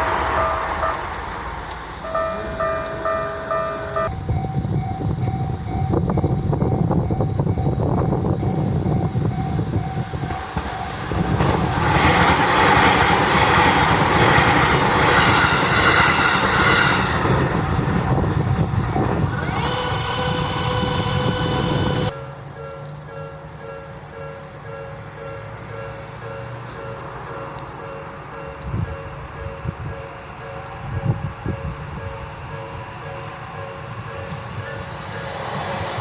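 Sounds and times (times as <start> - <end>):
electric train passing: 0.0 - 36.0
level crossing bell ringing: 2.0 - 6.0.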